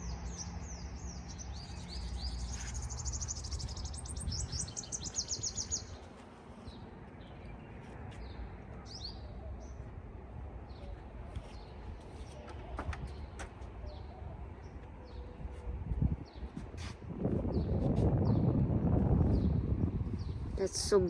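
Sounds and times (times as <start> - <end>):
small birds chirping: 0.0 - 10.0, 10.6 - 15.5.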